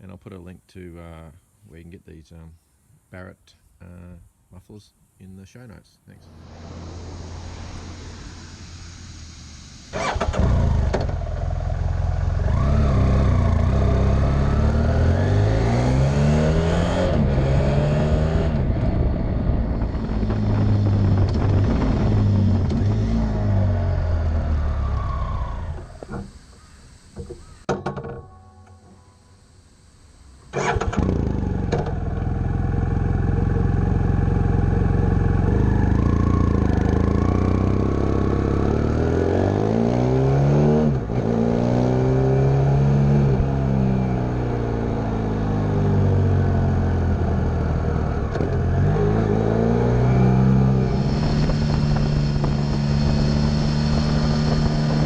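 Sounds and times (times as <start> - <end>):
motorcycle engine revving: 6.3 - 26.6, 30.5 - 55.0
wind noise: 18.1 - 23.6, 50.7 - 55.0.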